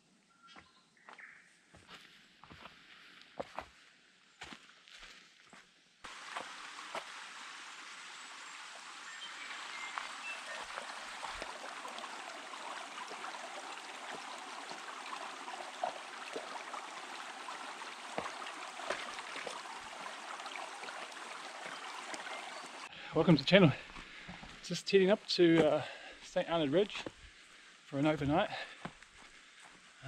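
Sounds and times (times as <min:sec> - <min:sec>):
running water rushing: 0:06.1 - 0:23.9.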